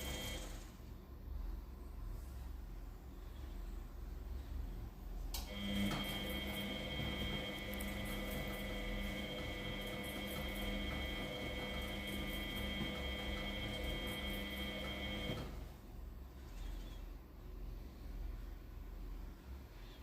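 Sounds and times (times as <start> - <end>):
washing machine motor whine: 0.0 - 1.0, 5.4 - 15.9.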